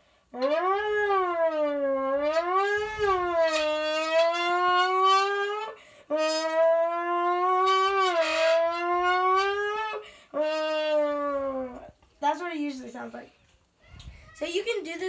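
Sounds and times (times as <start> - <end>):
air buzzing through drink can: 0.4 - 11.8.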